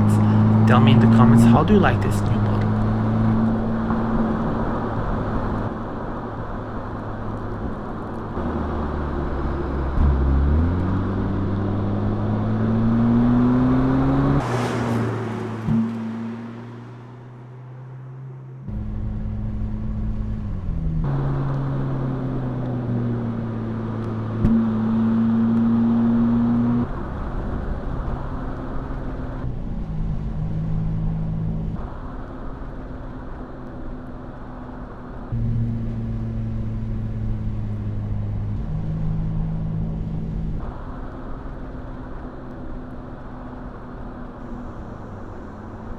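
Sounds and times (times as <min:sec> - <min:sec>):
car engine exhaust note: 0:00.0 - 0:05.6, 0:06.7 - 0:21.0.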